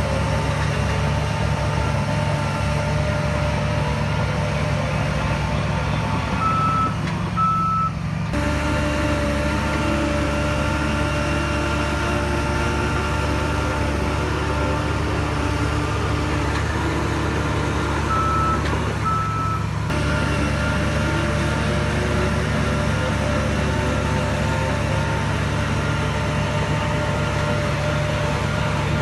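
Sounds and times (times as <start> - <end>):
diesel machinery running: 0.0 - 29.0
reversing alarm beeps: 6.4 - 7.9, 18.1 - 19.6.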